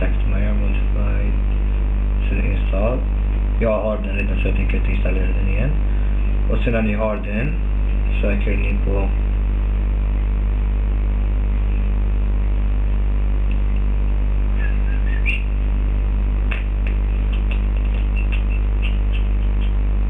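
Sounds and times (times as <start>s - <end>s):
low electrical hum: 0.0s - 20.0s
faint clicks: 16.5s - 19.9s.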